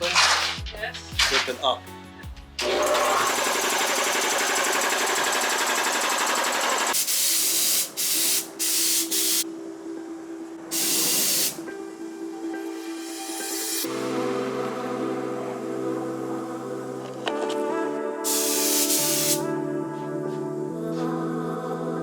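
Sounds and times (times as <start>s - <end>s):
air compressor rattling: 2.6s - 7.0s
compressed air hissing: 7.0s - 9.4s, 10.7s - 11.7s, 18.3s - 19.5s.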